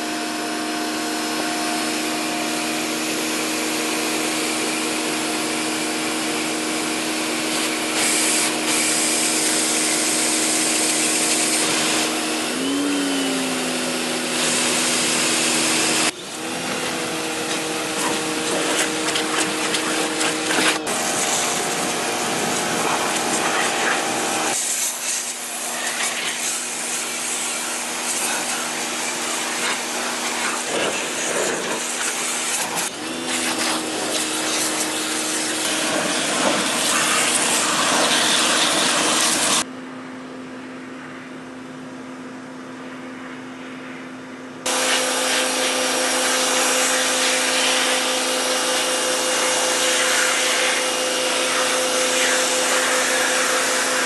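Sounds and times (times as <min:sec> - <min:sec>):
pressure washer motor humming: 0:00.0 - 0:39.7, 0:44.6 - 0:54.0
high-pressure water spray hiss: 0:07.3 - 0:39.6, 0:44.7 - 0:54.0.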